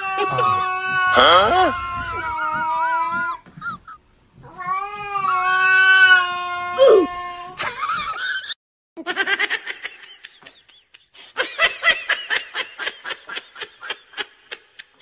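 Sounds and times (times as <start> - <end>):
person laughing: 3.4 - 4.0
cat meowing: 4.4 - 7.6.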